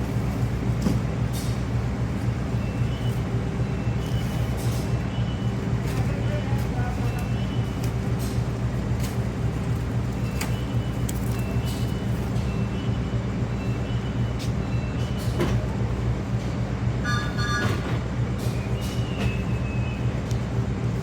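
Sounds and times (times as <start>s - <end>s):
diesel engine hum: 0.0s - 21.0s
train horn: 17.0s - 18.0s.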